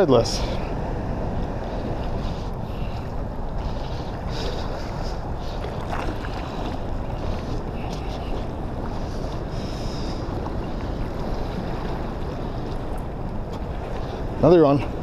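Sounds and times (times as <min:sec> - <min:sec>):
rushing water: 0:00.0 - 0:15.0
wind buffeting microphone: 0:00.0 - 0:15.0.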